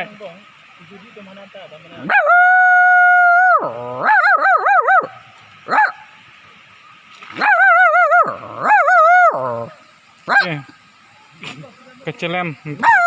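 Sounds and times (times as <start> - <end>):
person imitating dog howling: 2.0 - 5.1, 7.4 - 9.8, 12.8 - 13.0.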